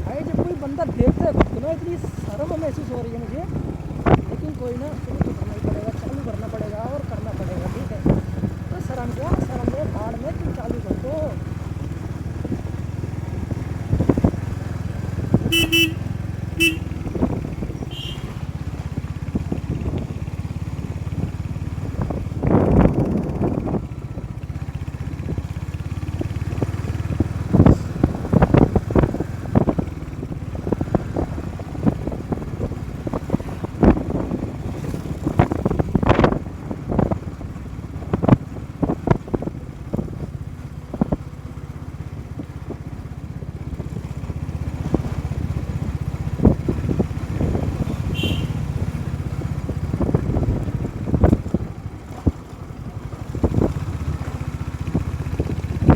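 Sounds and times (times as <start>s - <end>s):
motorcycle engine running: 0.0s - 55.9s
vehicle horn honking: 15.4s - 18.6s, 47.9s - 48.8s.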